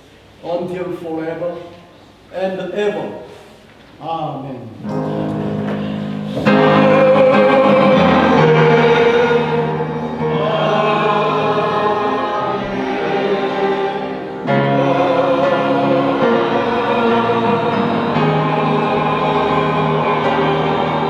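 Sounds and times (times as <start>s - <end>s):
choir singing a hymn: 4.8s - 21.0s.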